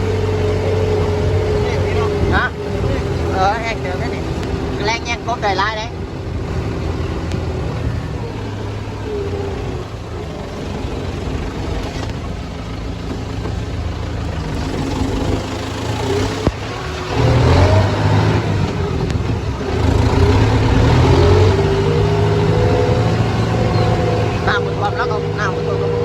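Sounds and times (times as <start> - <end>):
engine running and revving: 0.0 - 26.0.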